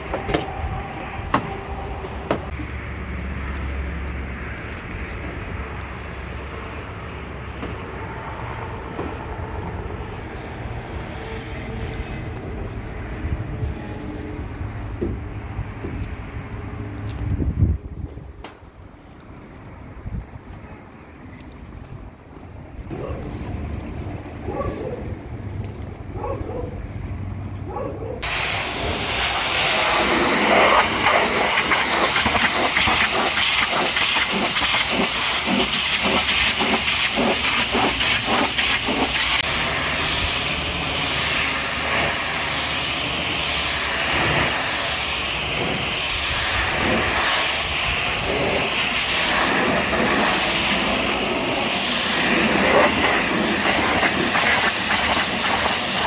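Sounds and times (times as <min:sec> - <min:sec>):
pressure washer spraying water: 0:28.2 - 0:56.0.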